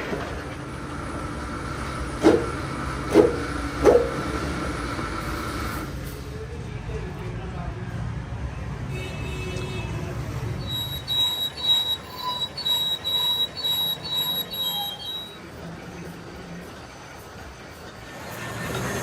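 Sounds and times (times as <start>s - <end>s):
metal-on-metal squealing: 10.6s - 15.4s.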